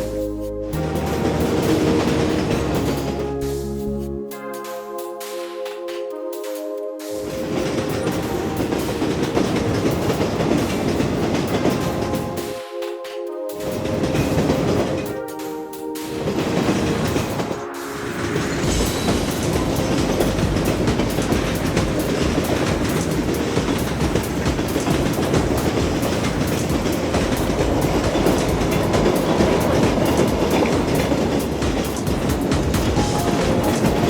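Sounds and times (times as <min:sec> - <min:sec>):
rapid clattering: 0:18.6 - 0:34.0.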